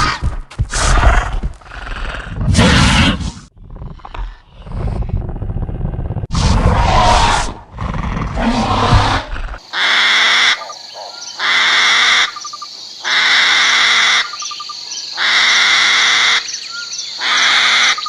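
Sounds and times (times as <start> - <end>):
birds chirping faintly: 10.5 - 13.1.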